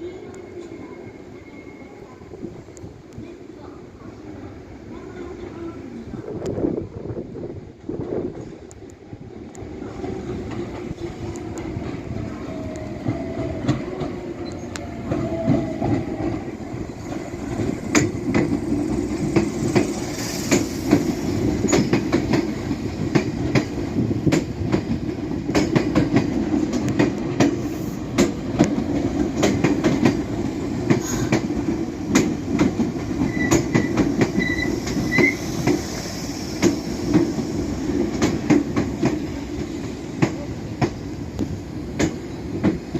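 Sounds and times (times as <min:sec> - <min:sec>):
train rumble: 0:00.0 - 0:42.9
train wheels clicking over rail joints: 0:09.9 - 0:42.9
high wheel squeals: 0:33.3 - 0:36.0.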